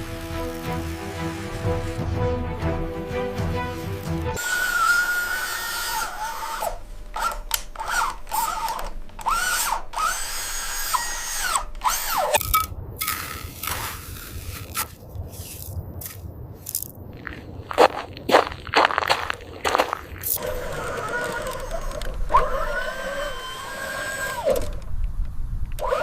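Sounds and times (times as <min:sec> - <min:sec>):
small electric motor whining: 0:04.4 - 0:14.8, 0:20.4 - 0:26.0.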